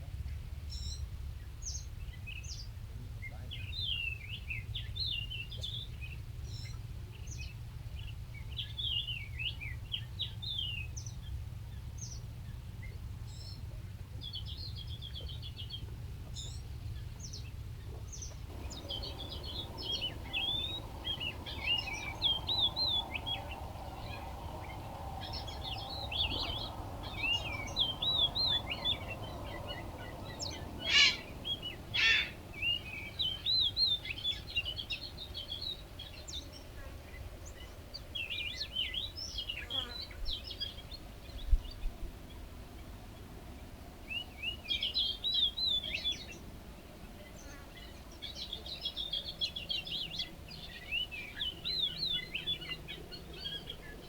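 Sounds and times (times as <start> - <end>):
small songbirds chirping: 0.7 - 13.6, 14.2 - 54.0
low background rumble: 16.7 - 36.5
loud sharp bird notes: 18.5 - 34.3.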